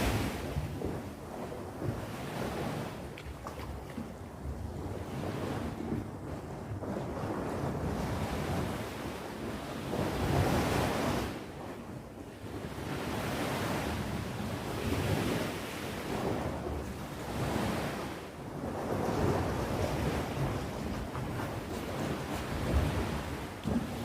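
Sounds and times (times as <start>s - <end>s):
sea waves breaking on shore: 0.0s - 24.0s
wind noise on microphone: 0.0s - 24.0s.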